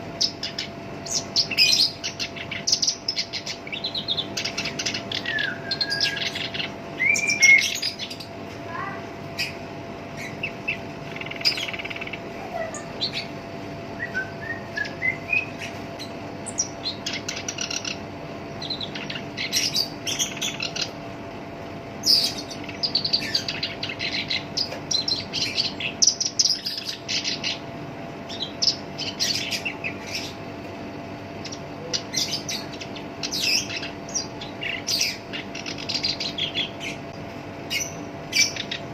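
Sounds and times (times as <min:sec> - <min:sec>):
bird harsh chattering song: 0:00.0 - 0:21.1, 0:22.0 - 0:27.7, 0:28.3 - 0:30.5, 0:31.3 - 0:38.9
whistled gliding bird notes: 0:05.2 - 0:06.4, 0:07.0 - 0:07.9, 0:13.9 - 0:15.7.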